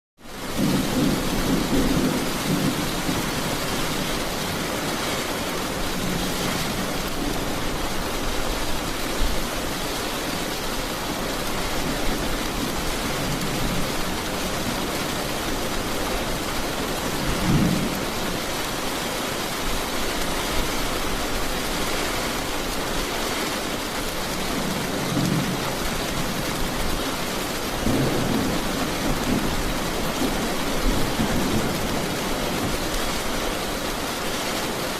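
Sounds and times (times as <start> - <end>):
heavy rain falling: 0.2 - 34.9
thunder rumbles: 0.3 - 9.5, 11.0 - 18.8, 24.2 - 33.3.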